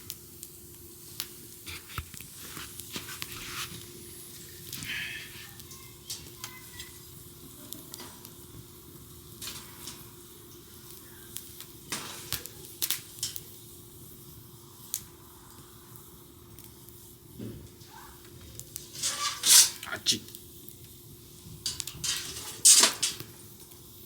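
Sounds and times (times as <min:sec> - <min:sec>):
campfire crackling and popping: 0:00.0 - 0:24.0.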